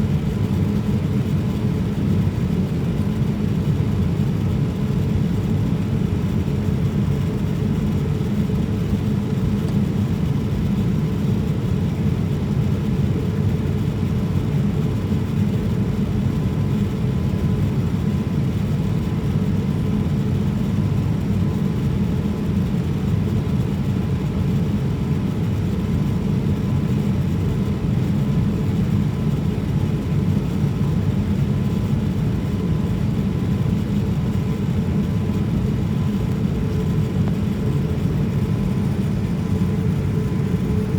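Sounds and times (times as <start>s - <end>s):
aircraft cabin drone: 21.9s - 40.9s.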